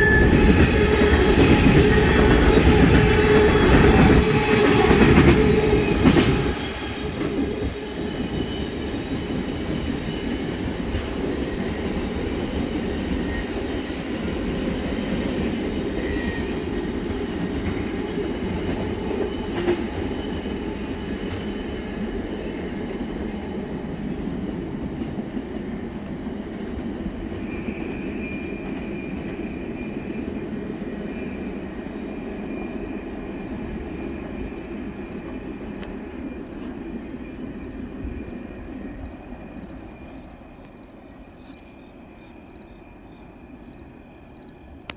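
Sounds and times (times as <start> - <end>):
freight train rumbling: 0.0 - 44.9
insect chirping: 19.3 - 44.7.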